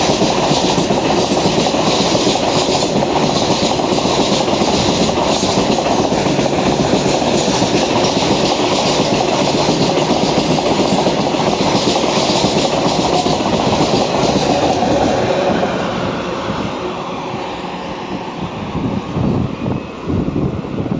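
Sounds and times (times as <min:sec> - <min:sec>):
train wheels clattering over rail joints: 0:00.0 - 0:15.2.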